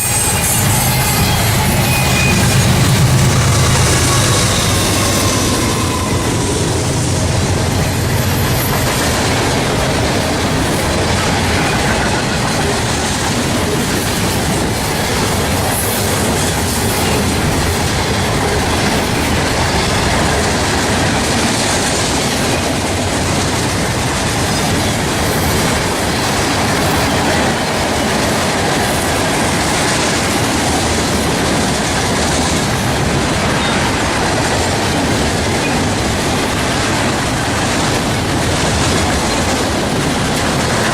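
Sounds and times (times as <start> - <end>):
train wheels on rail: 0.0 - 40.9.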